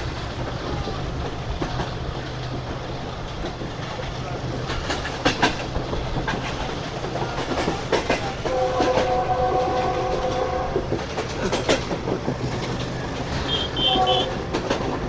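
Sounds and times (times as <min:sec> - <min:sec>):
train wheels clacking over rail joints: 0:00.0 - 0:15.0
train horn: 0:08.4 - 0:10.9, 0:13.4 - 0:14.9.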